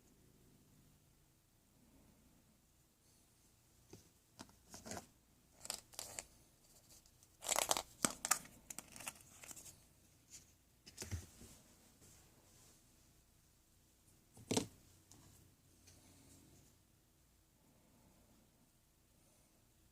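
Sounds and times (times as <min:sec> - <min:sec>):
crinkling and tearing: 0:05.6 - 0:09.8.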